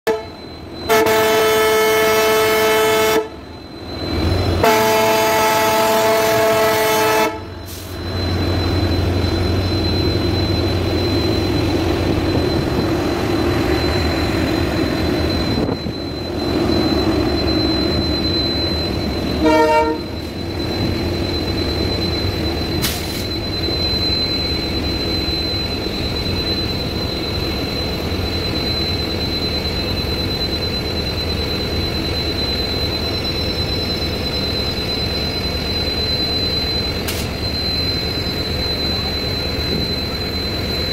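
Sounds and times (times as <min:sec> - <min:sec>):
locomotive horn blasts: 0:00.0 - 0:03.5, 0:04.5 - 0:07.9, 0:19.3 - 0:20.3
train engine rumbling: 0:00.0 - 0:40.9.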